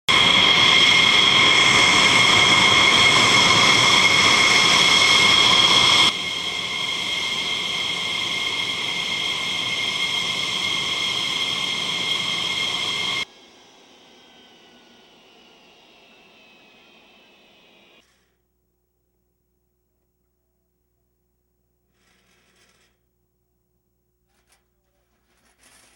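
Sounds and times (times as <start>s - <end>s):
jet engine whine: 0.1s - 18.1s.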